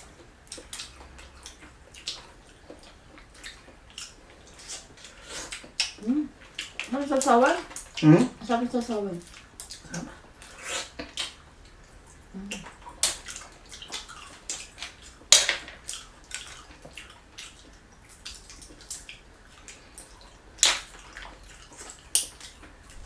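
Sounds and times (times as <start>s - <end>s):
wet chewing and slurping: 0.1s - 8.0s, 8.8s - 23.0s.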